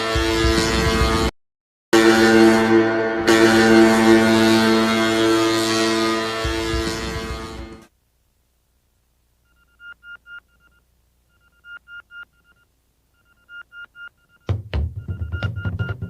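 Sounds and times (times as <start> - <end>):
band bass and drums: 0.0 - 1.3, 6.0 - 7.8, 14.5 - 16.0
electronic phone beeps: 9.4 - 16.0.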